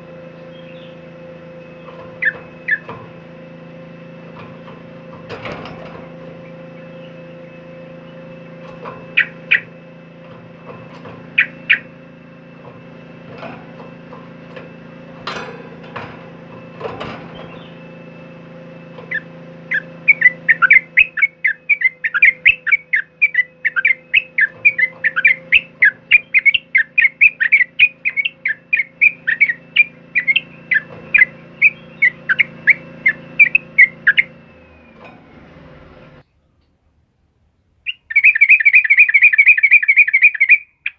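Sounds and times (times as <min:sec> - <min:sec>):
bulbul chattering calls: 0:00.4 - 0:01.1, 0:01.7 - 0:03.0, 0:06.3 - 0:08.3, 0:09.1 - 0:09.8, 0:11.3 - 0:12.0, 0:19.1 - 0:34.4, 0:37.8 - 0:40.9.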